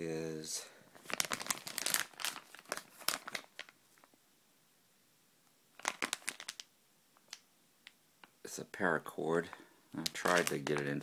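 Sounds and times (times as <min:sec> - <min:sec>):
plastic packaging crinkling: 0:01.0 - 0:04.1, 0:05.8 - 0:07.4, 0:09.5 - 0:11.0.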